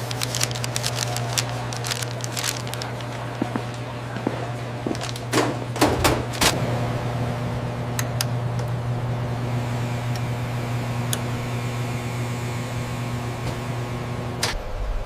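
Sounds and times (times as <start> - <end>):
low machine hum with held tone: 0.0 - 15.0.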